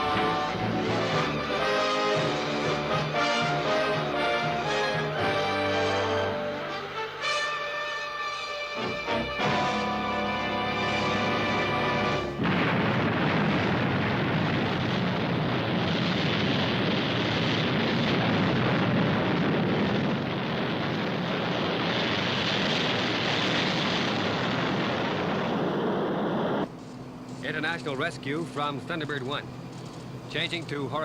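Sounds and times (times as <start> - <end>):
rocket engine roaring: 0.0 - 7.3, 8.8 - 26.7
music: 0.0 - 12.4.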